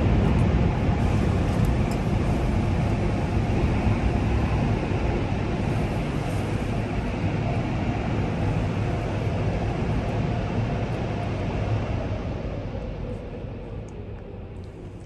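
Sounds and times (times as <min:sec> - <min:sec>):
deep rumble: 0:00.0 - 0:15.0
car wash spraying water: 0:00.8 - 0:09.8.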